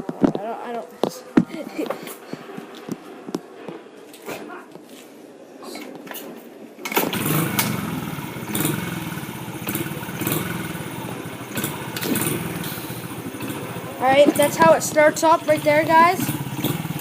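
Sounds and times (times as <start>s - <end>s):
dirt bike engine revving: 6.9s - 17.0s.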